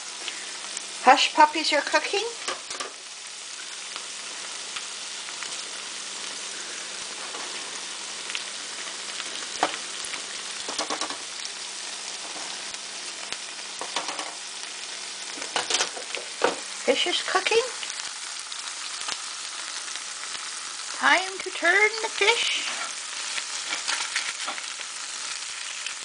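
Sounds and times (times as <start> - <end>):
food sizzling in hot oil: 0.0 - 26.0
spatula clicking in pan: 10.7 - 11.2.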